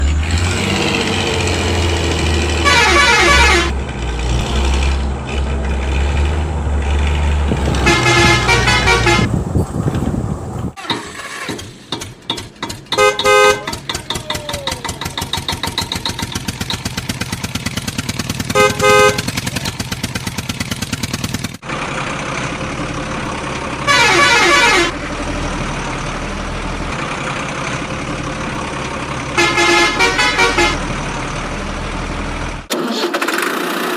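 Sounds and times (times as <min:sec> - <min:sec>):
truck engine chugging: 0:00.0 - 0:32.7
truck horn honking: 0:02.4 - 0:03.8, 0:07.6 - 0:09.4, 0:12.9 - 0:14.3, 0:18.4 - 0:19.6, 0:23.8 - 0:25.0, 0:29.3 - 0:30.9.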